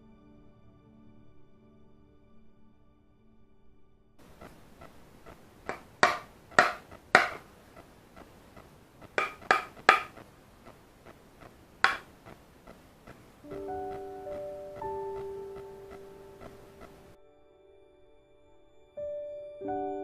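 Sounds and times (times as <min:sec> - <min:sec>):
hammer tapping hand plane: 0:05.7 - 0:07.5, 0:09.1 - 0:10.2, 0:11.8 - 0:12.1.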